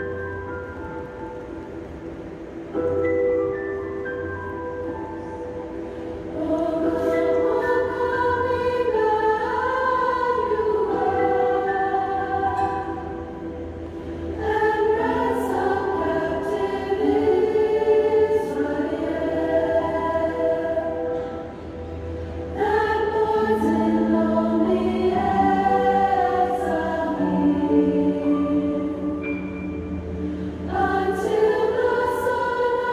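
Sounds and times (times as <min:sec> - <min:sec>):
choir singing: 0:06.2 - 0:32.9.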